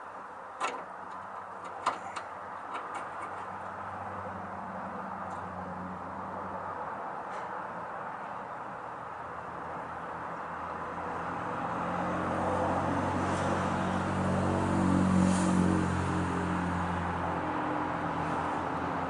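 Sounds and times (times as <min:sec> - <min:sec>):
vehicle engine passing by: 0:10.9 - 0:19.0.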